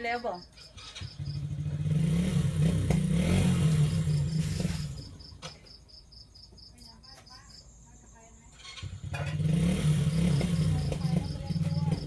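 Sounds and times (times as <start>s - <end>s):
cricket chirping: 0.0s - 2.1s, 3.3s - 12.0s
motorcycle engine running: 0.0s - 5.8s, 8.4s - 12.0s.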